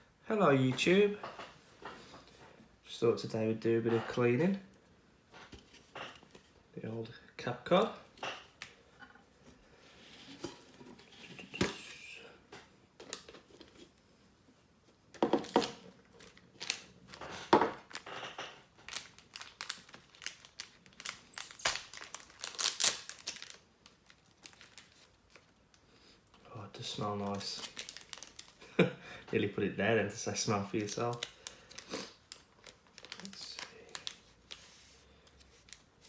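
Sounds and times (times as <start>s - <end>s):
cloth crinkling and rustling: 16.0s - 25.6s, 30.8s - 36.0s.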